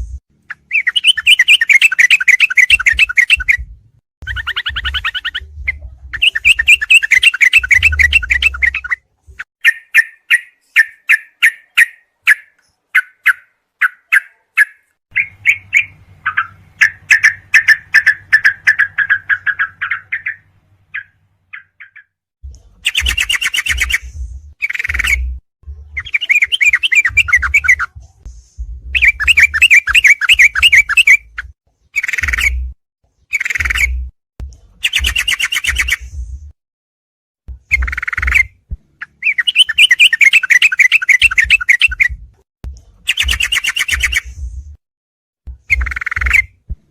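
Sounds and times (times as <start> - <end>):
recorded bird song: 0.0 - 36.5, 37.5 - 44.8, 45.5 - 46.9
low hum: 15.1 - 21.5.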